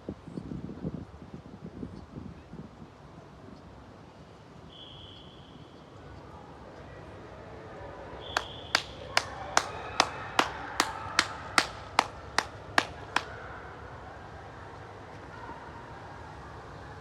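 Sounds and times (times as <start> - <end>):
sharp knocks or claps: 8.4 - 13.3.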